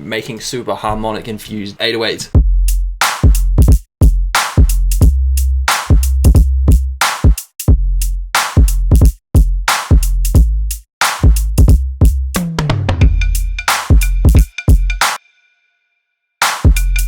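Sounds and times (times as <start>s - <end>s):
deep bass notes: 2.4s - 7.0s, 7.7s - 14.4s.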